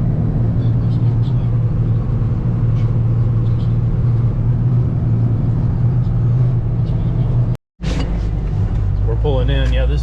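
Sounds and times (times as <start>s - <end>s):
road noise: 0.0s - 10.0s
truck engine drone: 0.0s - 10.0s.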